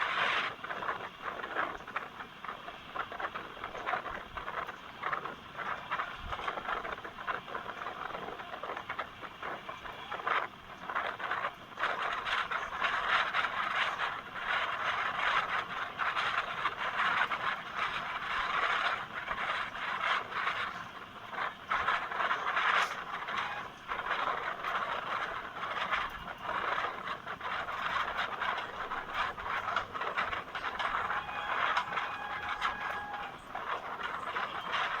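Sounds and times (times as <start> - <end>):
train wheels rattling on rails: 0.0 - 35.0
faint steady tone: 28.7 - 35.0.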